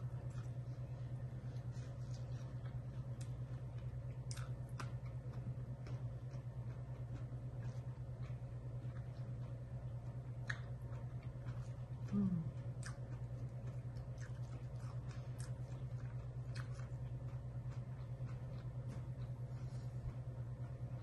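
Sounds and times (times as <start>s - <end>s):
chewing crisp salad: 0.0s - 21.0s
steady low hum: 0.0s - 21.0s
person humming mm: 12.1s - 12.6s.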